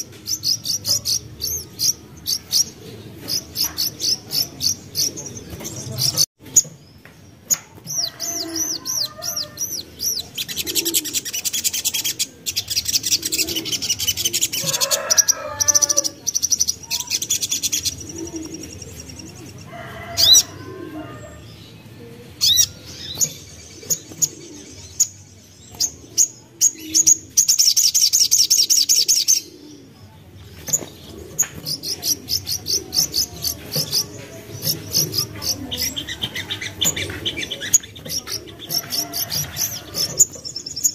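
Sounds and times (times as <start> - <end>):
bird chirping and trilling: 0.0 - 6.8, 7.4 - 21.8, 22.4 - 29.9.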